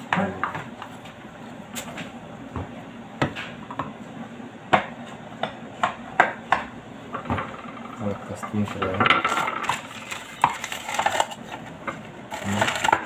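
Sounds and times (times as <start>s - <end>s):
sharp knocks of hard objects: 4.7s - 7.9s.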